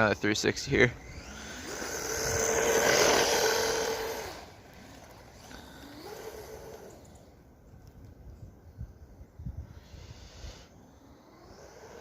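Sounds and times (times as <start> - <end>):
electric motor whining: 0.6 - 8.0, 10.7 - 12.0
tires spinning in snow: 0.8 - 7.6, 10.5 - 12.0.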